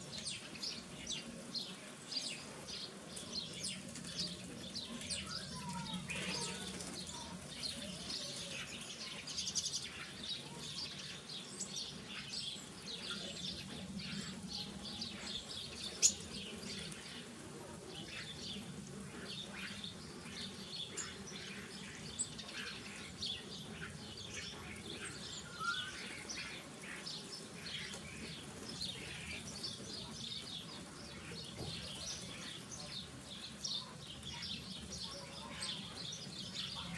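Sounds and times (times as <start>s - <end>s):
birds chirping and twittering: 0.0s - 36.9s.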